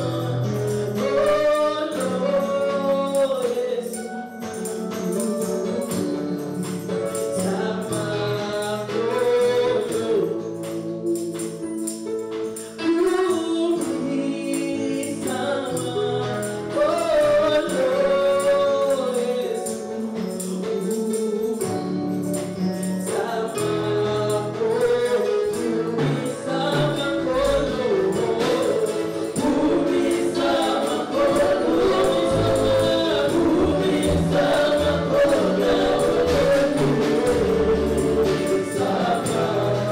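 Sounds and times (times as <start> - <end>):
tambourine: 0.0 - 39.9
choir singing gospel: 14.1 - 21.8, 22.9 - 39.9.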